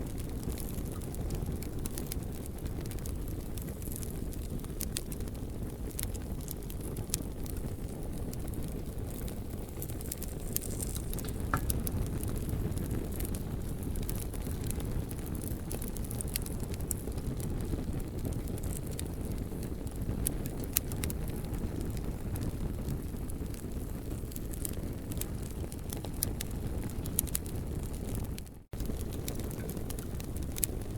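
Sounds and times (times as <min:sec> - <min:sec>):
campfire crackling: 0:00.0 - 0:30.9.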